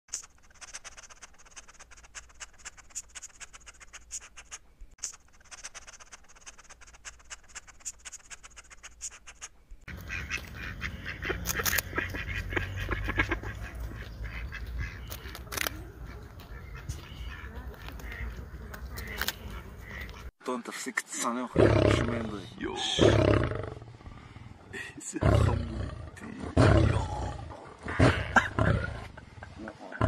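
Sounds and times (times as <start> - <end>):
rodent ticking and rustling: 0.1 - 9.6
animal calls: 0.2 - 20.3.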